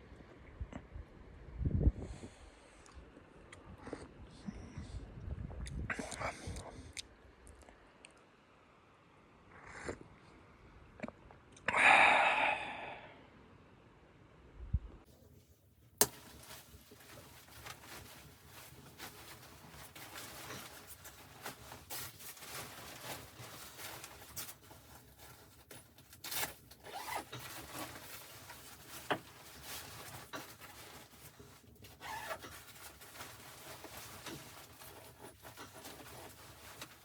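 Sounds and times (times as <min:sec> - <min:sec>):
rubbing and rustling: 0:15.1 - 0:37.0.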